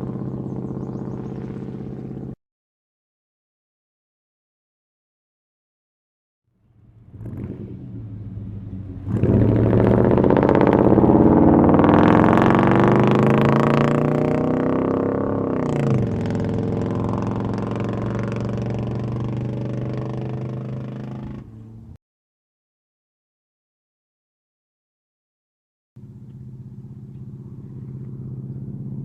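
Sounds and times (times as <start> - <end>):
truck engine revving: 0.0 - 2.4, 6.6 - 21.9, 26.0 - 29.0.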